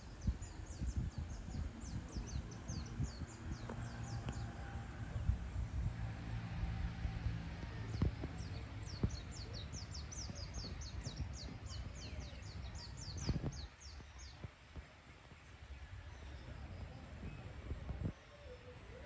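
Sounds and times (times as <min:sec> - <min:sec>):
low background rumble: 0:00.0 - 0:14.3.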